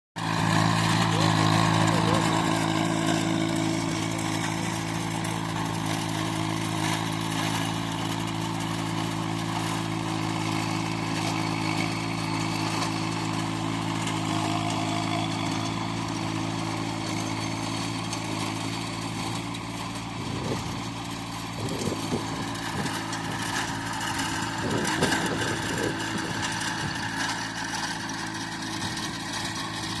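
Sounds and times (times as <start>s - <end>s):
tractor diesel engine running: 0.2s - 30.0s.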